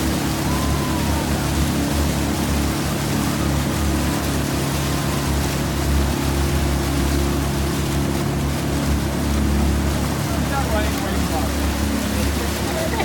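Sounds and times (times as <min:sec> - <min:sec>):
motorboat engine humming: 0:00.0 - 0:13.0
water rushing: 0:00.0 - 0:13.0.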